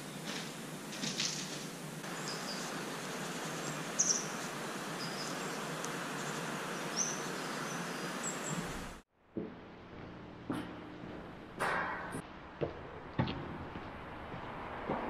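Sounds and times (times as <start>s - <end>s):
birds chirping: 0.0s - 9.0s
steady background hiss: 0.0s - 9.0s.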